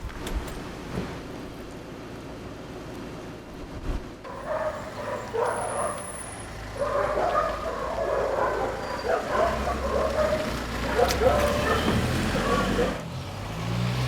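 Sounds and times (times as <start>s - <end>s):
low traffic rumble: 0.0s - 14.0s
dog barking and yipping: 4.3s - 13.0s.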